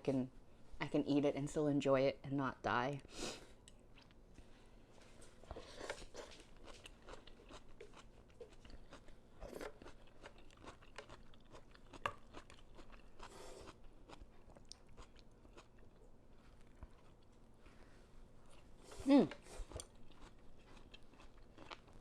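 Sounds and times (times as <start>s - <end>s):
person chewing: 5.5s - 17.4s, 18.4s - 22.0s.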